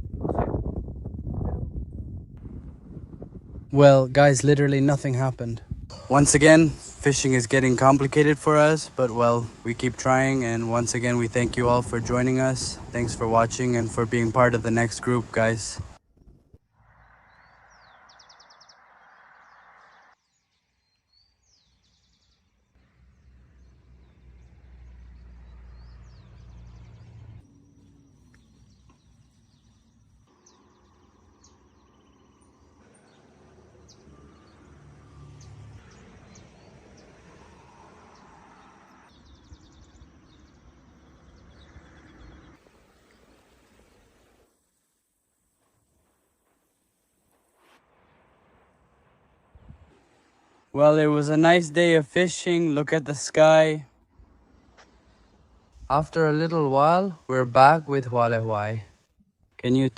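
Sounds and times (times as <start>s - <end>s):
wind rumbling on microphone: 0.0s - 8.3s, 9.4s - 20.0s, 47.4s - 50.6s
birds chirping: 3.7s - 16.0s, 16.9s - 44.6s, 48.1s - 59.9s.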